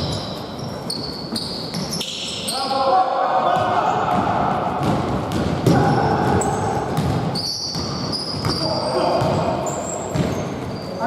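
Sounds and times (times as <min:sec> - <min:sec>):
sneakers squeaking on floor: 0:00.0 - 0:02.8, 0:03.4 - 0:11.0
players' voices echoing: 0:01.8 - 0:11.0
basketball bouncing: 0:03.5 - 0:10.9.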